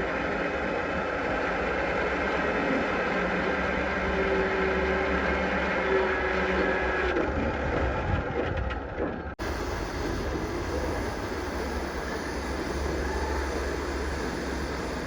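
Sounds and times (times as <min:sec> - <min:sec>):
machinery humming: 0:09.4 - 0:15.0.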